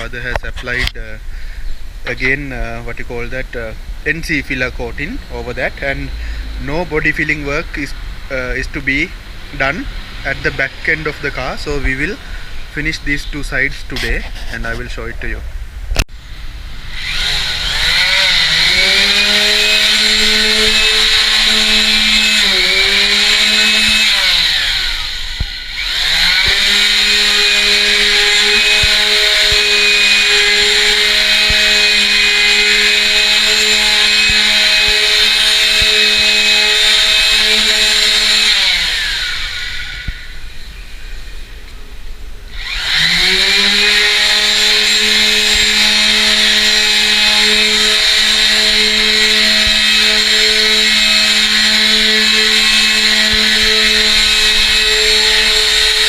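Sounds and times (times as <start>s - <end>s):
wall sander motor running: 16.8s - 40.6s, 42.5s - 56.0s.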